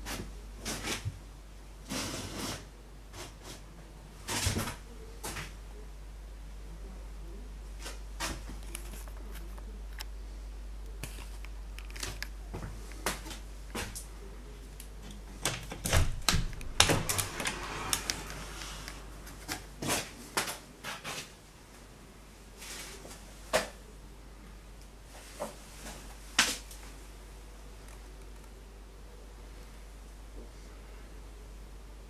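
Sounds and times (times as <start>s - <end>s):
steady low hum: 0.0s - 32.0s
sharp clicks and knocks: 14.8s - 18.4s.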